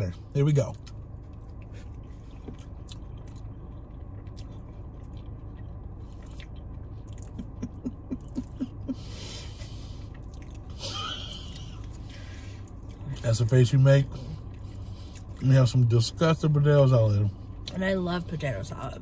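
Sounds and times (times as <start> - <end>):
low hum inside a car: 0.0 - 19.0
person chewing: 0.8 - 8.4, 9.8 - 10.8.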